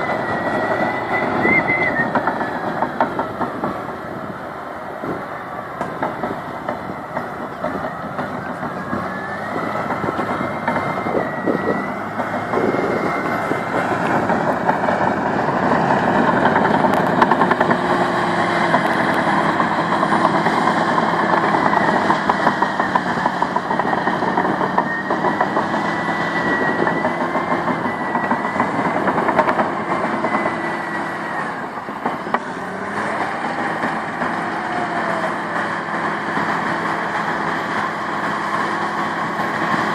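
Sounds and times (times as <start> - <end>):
high squeal: 0.0 - 3.0, 6.8 - 14.0, 21.6 - 29.0, 29.7 - 32.3
bulldozer diesel engine: 0.0 - 39.9.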